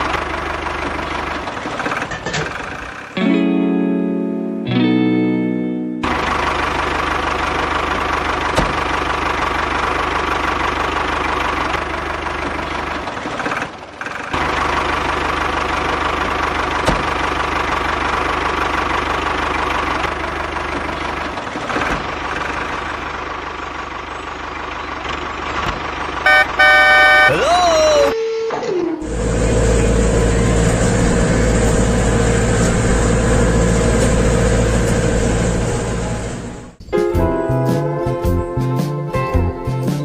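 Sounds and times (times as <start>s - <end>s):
small engine running: 29.0s - 36.8s.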